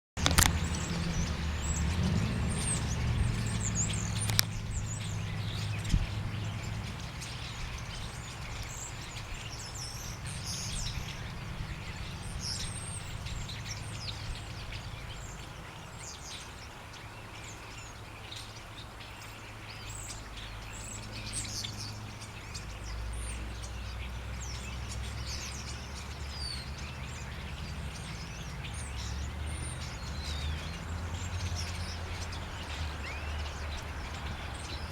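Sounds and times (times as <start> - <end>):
steady low rumble: 0.2 - 16.1
chickadees chirping: 0.2 - 34.9.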